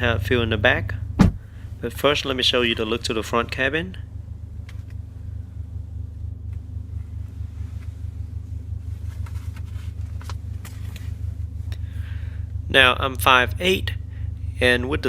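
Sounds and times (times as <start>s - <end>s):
car engine idling: 0.0s - 15.0s
faint clicks and rustles: 6.4s - 11.8s.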